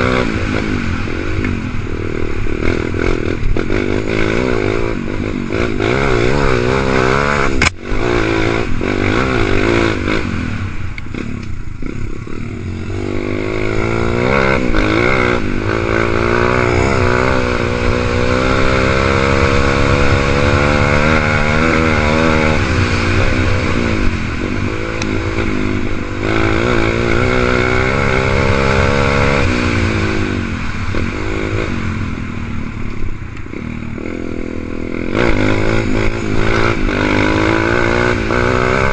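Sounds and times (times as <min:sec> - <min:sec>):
dirt bike engine revving: 0:00.0 - 0:38.9
sharp click: 0:07.6 - 0:07.8.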